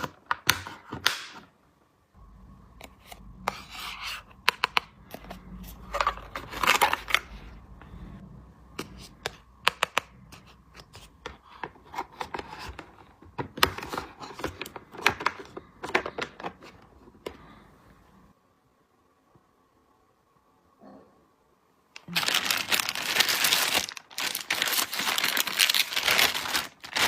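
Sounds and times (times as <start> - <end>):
packaging rustling: 22.0 - 27.0.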